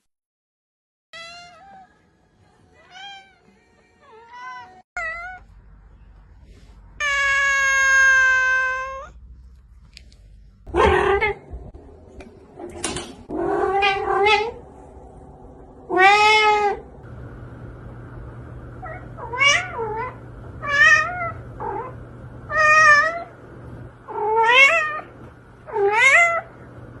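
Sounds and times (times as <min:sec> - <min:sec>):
cats meowing: 0:04.1 - 0:05.5, 0:07.0 - 0:09.2, 0:13.3 - 0:14.6, 0:15.9 - 0:16.8
low steady hum: 0:05.0 - 0:27.0.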